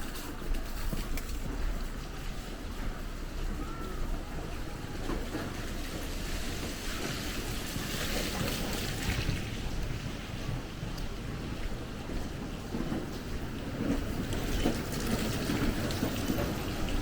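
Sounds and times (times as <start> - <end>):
wind rumble on microphone: 7.2 - 17.0.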